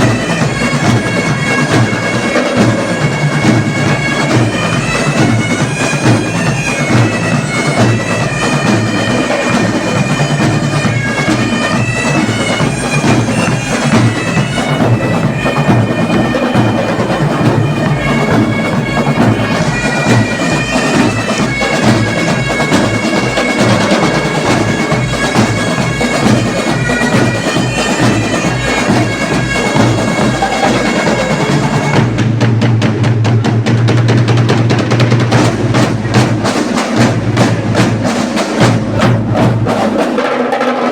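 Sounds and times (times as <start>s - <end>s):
bagpipes playing melody: 0.0s - 32.2s
drums: 0.0s - 40.9s
rapid drumming: 0.0s - 40.9s.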